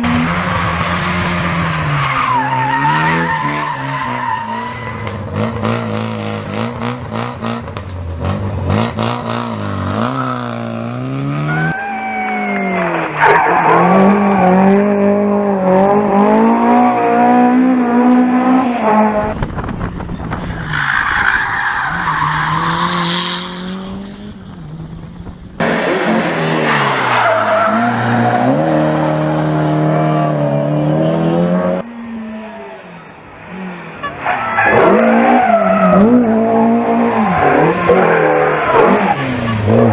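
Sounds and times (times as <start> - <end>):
rally car engines revving: 0.0 - 39.9
tyres skidding: 0.0 - 39.9.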